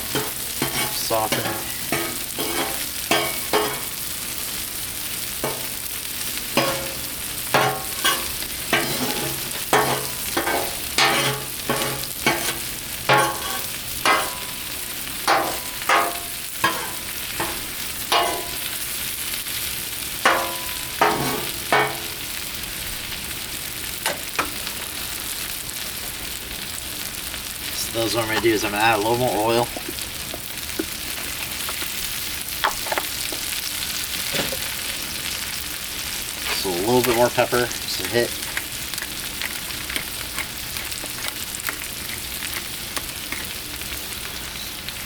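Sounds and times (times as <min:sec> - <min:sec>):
food frying on a griddle: 0:00.0 - 0:45.0
spatula clanking and scraping metal: 0:00.1 - 0:04.0, 0:06.5 - 0:14.7, 0:15.3 - 0:18.8, 0:20.3 - 0:22.2, 0:36.5 - 0:43.6.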